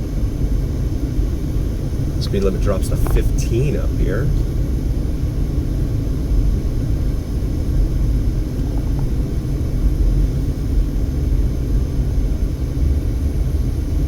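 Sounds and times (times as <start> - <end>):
car driving slowly: 1.5 - 4.8.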